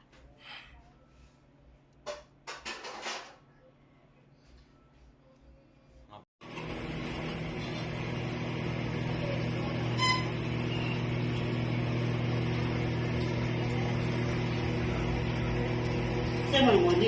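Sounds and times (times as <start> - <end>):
microwave oven humming: 6.4 - 17.0.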